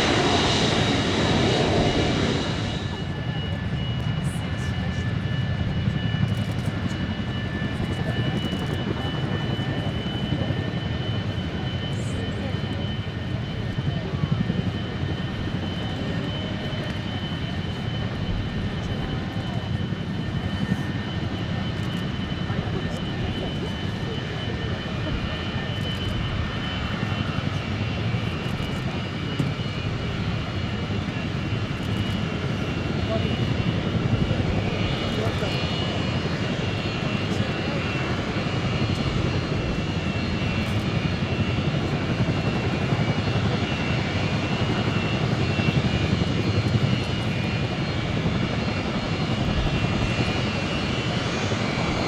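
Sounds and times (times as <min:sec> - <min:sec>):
high engine whine: 0:00.0 - 0:04.5
jet engines idling: 0:00.0 - 0:52.0.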